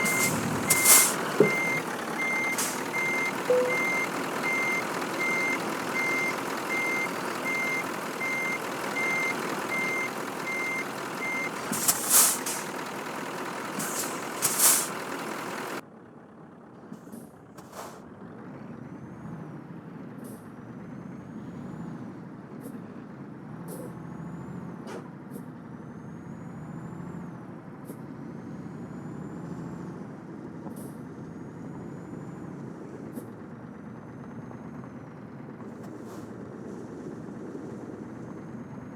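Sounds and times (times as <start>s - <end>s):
air brake hissing: 0.0s - 4.0s, 9.8s - 15.8s, 17.6s - 18.0s, 35.8s - 36.4s
reversing alarm beeps: 0.0s - 12.7s
truck engine running: 0.0s - 27.0s, 28.6s - 38.9s.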